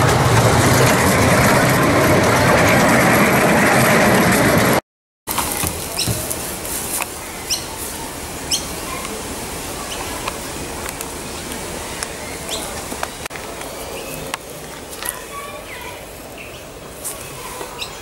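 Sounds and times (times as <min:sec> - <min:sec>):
outdoor background hiss: 0:05.3 - 0:18.0
small birds chirping: 0:05.5 - 0:18.0.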